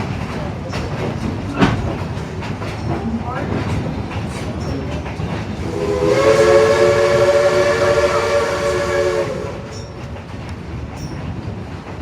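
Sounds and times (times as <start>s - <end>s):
train rumble and hiss: 0.0s - 12.0s
steam locomotive whistle chord: 5.6s - 10.0s.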